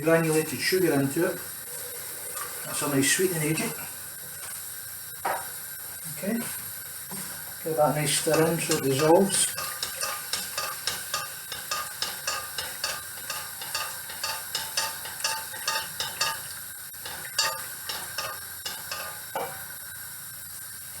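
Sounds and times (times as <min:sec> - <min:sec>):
spoon scraping a pan: 0:08.1 - 0:19.6.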